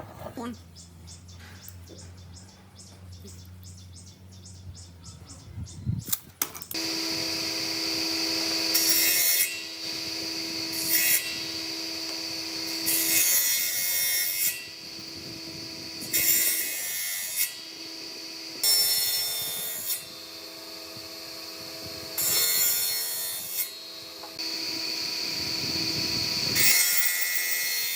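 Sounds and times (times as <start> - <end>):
power tool whining: 6.6 - 27.9
power tool cutting wood: 6.7 - 27.9.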